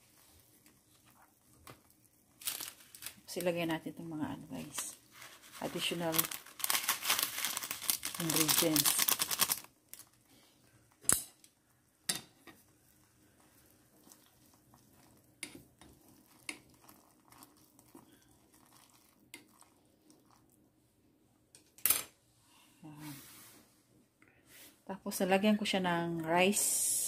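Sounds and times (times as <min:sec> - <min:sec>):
chopsticks stirring noodles in pot: 0:00.0 - 0:03.7, 0:12.0 - 0:20.6
plastic packet crinkling: 0:02.3 - 0:03.5, 0:04.6 - 0:10.2.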